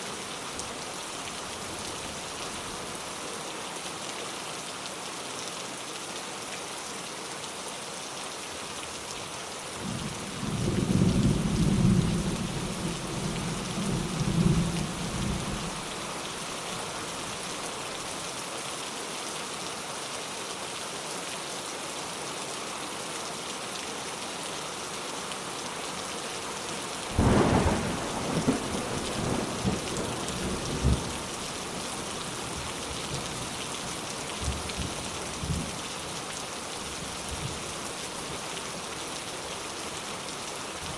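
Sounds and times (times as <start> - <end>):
steady rain: 0.0 - 40.9
rolling thunder: 27.2 - 31.2.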